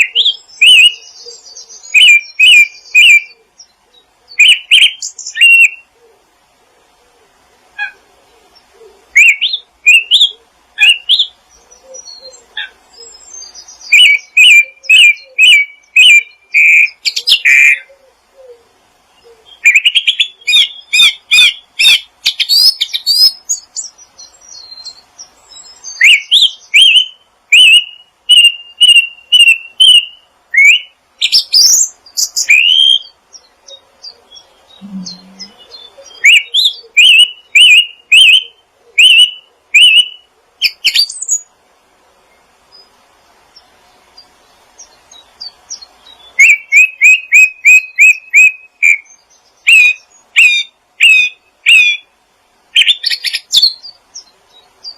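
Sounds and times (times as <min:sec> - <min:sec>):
songbird chirping: 0:00.0 - 0:54.9.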